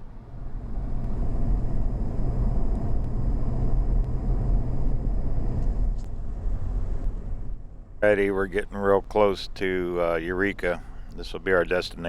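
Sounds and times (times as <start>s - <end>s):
engine and road rumble: 0.0s - 12.0s
faint high whine: 7.4s - 12.0s.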